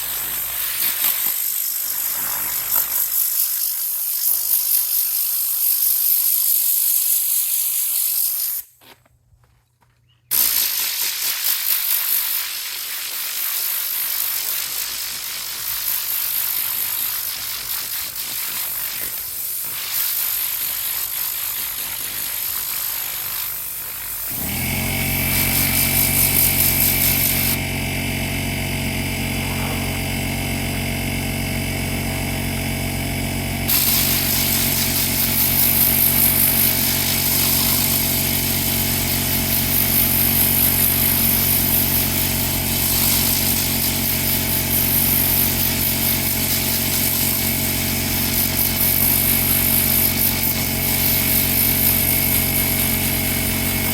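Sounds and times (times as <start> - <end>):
hiss: 0.0 - 8.8, 10.3 - 31.2, 32.1 - 53.9
electric motor running: 24.1 - 53.9.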